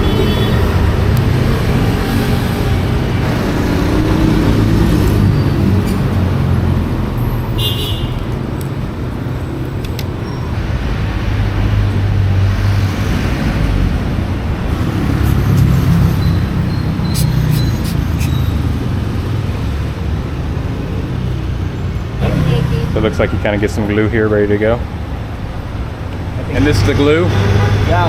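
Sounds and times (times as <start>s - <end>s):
traffic engines rumbling: 0.0s - 28.0s.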